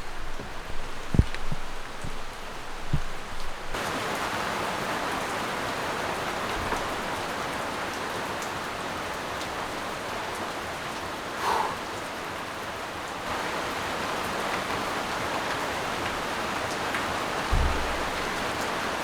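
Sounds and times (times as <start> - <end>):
low thumps: 0.0 - 3.8, 17.5 - 18.8
steady rain falling: 0.0 - 19.0.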